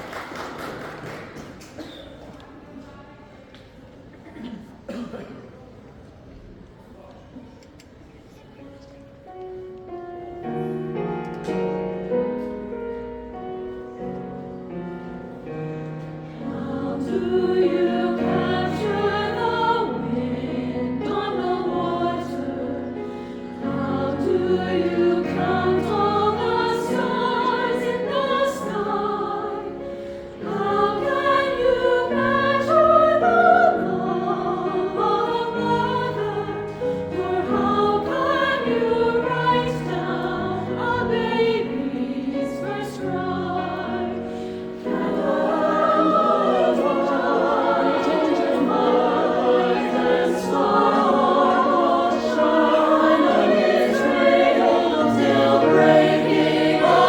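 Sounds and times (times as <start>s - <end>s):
choir singing: 15.0s - 57.0s.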